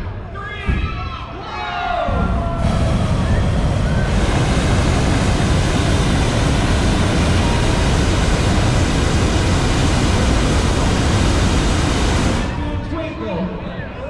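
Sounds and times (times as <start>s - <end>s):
propane burners roaring: 2.2s - 13.1s.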